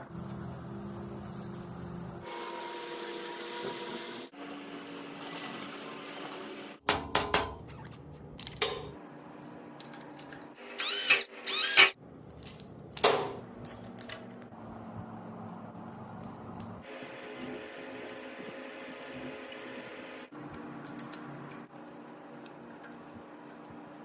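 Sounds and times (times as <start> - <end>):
small electric motor whirring: 10.7 - 12.0.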